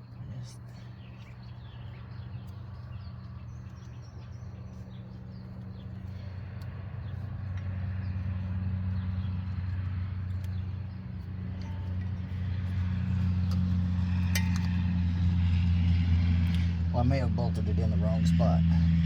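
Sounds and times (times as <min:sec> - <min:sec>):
small birds chirping faintly: 0:00.0 - 0:13.8
steady low hum: 0:00.0 - 0:19.0.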